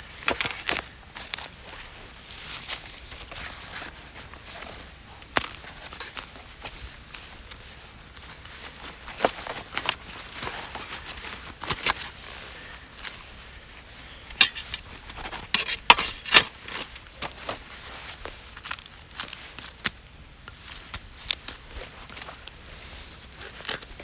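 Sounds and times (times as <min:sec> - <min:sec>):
camping gear clicks and knocks: 0:00.1 - 0:01.8, 0:02.6 - 0:12.3, 0:14.3 - 0:22.6.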